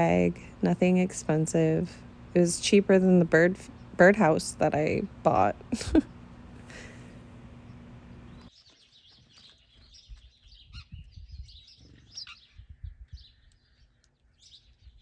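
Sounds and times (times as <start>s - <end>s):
small songbirds chirping: 7.5s - 15.0s.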